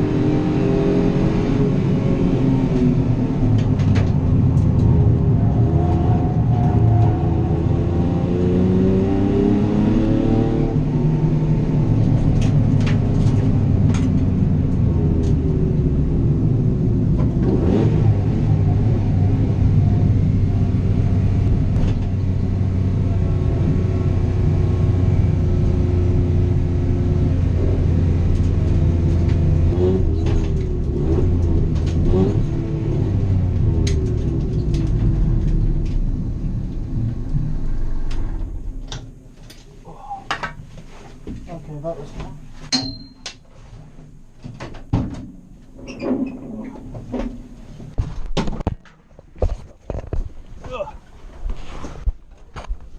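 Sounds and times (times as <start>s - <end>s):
race car engine revving: 4.3s - 14.0s, 15.2s - 21.9s, 22.7s - 39.1s.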